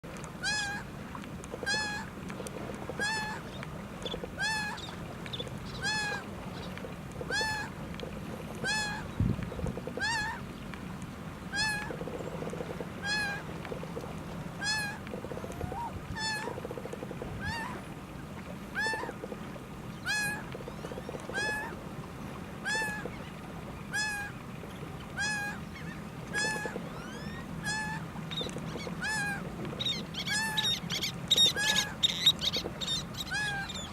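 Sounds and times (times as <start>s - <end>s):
gull calling: 0.4s - 0.8s, 1.6s - 2.1s, 2.9s - 5.0s, 5.7s - 7.7s, 8.6s - 9.1s, 9.8s - 10.4s, 11.5s - 12.1s, 13.0s - 13.5s, 14.6s - 17.8s, 18.7s - 19.3s, 20.0s - 21.8s, 22.6s - 23.3s, 23.9s - 24.4s, 25.1s - 33.9s.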